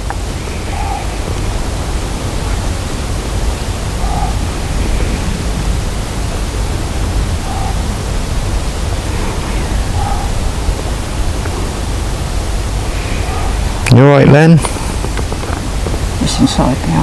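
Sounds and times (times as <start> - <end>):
low rumble: 0.0 - 17.0
steady loud hiss: 0.0 - 17.0.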